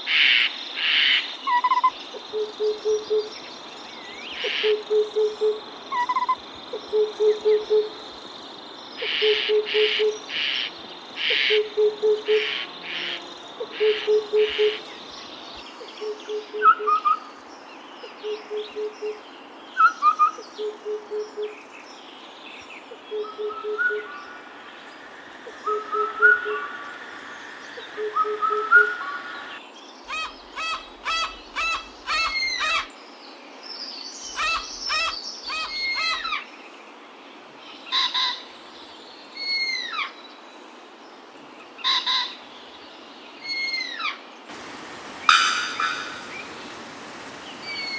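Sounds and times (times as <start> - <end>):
falling whistled bird calls: 24.7 - 29.6, 44.5 - 47.9
bird hooting: 25.4 - 32.8, 44.5 - 47.9
rapid sharp bird notes: 44.5 - 47.9.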